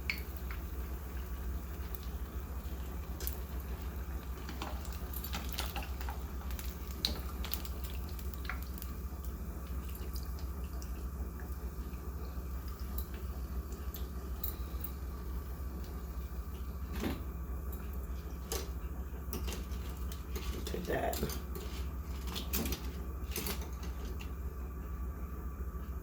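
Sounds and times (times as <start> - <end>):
food frying in hot oil: 0.0 - 25.7
steady low hum: 0.0 - 26.0.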